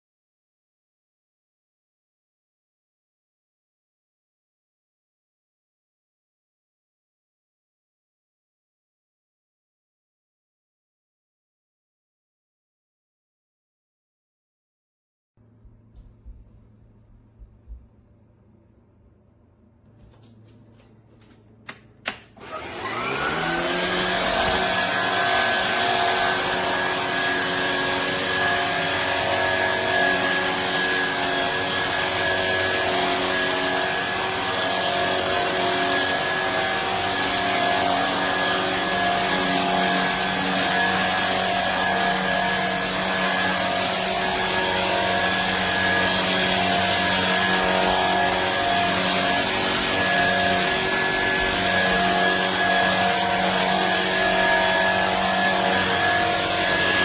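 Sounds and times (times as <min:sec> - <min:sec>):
vacuum switch clicks: 0:21.6 - 0:22.4
vacuum motor whine: 0:22.1 - 0:57.0.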